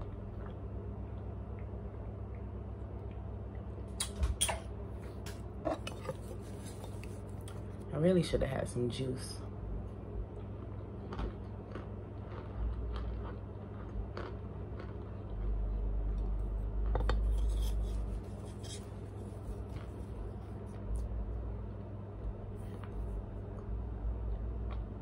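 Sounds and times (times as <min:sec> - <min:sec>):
chewing clicks and crumbling: 0:00.0 - 0:07.9, 0:09.9 - 0:21.1
steady low hum: 0:00.0 - 0:25.0
low rumble: 0:09.4 - 0:18.4.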